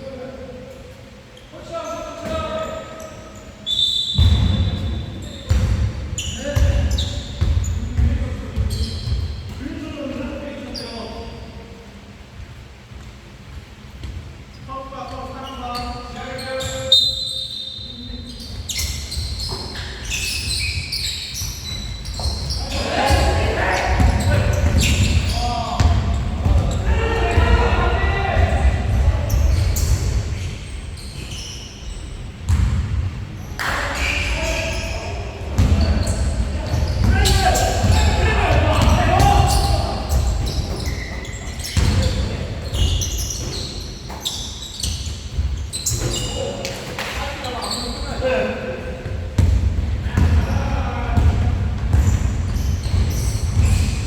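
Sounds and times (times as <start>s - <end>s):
shoe squeaks on court: 1.4s - 9.6s, 14.5s - 26.8s, 29.2s - 32.7s, 33.4s - 48.2s, 51.9s - 54.0s
basketball bouncing: 5.5s - 5.9s, 22.1s - 27.8s, 32.5s - 33.0s, 35.6s - 43.5s, 51.2s - 54.0s.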